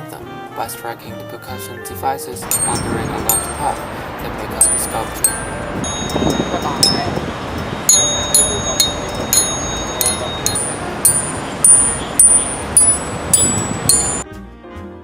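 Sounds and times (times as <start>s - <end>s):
metal tubes struck ringing: 2.4s - 14.2s.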